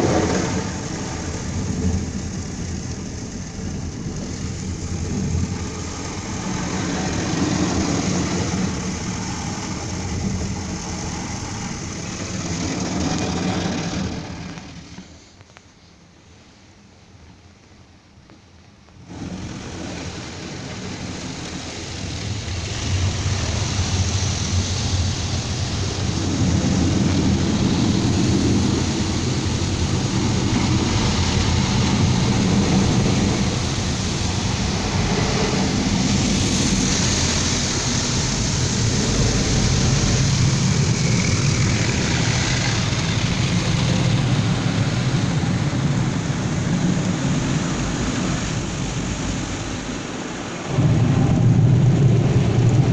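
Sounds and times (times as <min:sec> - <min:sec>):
water spray: 0:00.0 - 0:15.4, 0:19.0 - 0:52.8
deep mechanical rumble: 0:00.0 - 0:15.6, 0:18.8 - 0:52.9.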